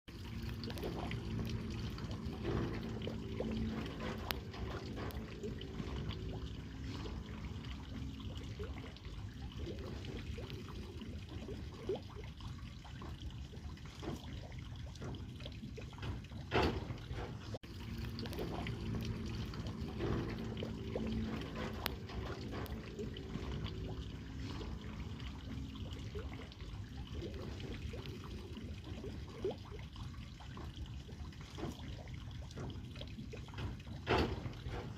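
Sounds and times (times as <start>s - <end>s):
water trickling and splashing: 0.0s - 34.9s.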